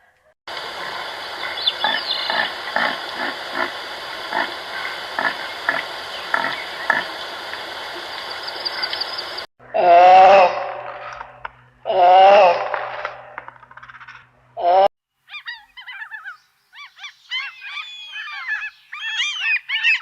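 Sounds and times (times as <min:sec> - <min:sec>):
steady hiss: 0:00.5 - 0:09.5
animal grunting: 0:00.6 - 0:07.2.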